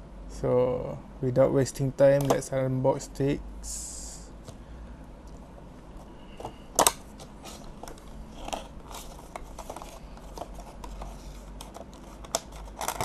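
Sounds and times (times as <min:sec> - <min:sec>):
packaging clicks and rustles: 0:06.4 - 0:13.0
packaging sharp crack: 0:11.5 - 0:13.0.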